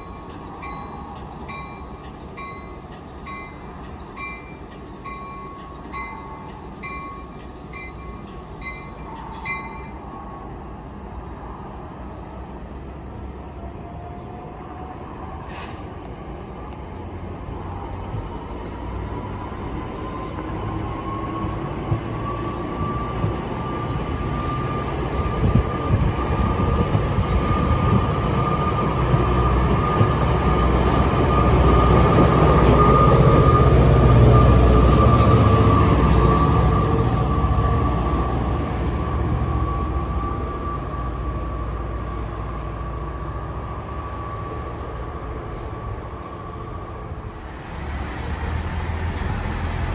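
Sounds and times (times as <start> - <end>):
commuter train rumble: 0.0 - 49.9
high wheel squeal: 19.5 - 40.9, 47.1 - 49.9.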